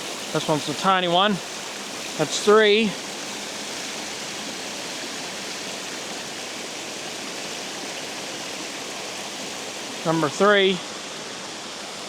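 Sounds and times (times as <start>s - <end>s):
water rushing over spillway: 0.0s - 12.0s.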